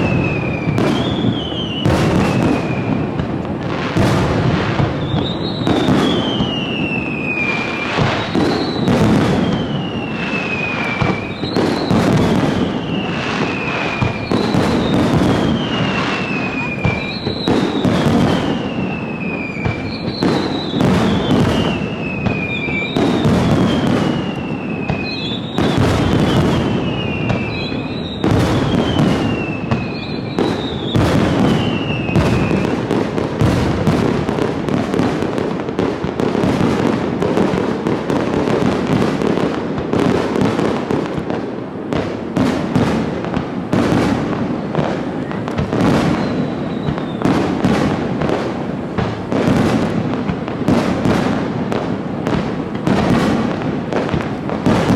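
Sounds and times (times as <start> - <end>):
falling firework whistles: 0.0 - 54.9
fireworks bursting and crackling: 0.0 - 54.9.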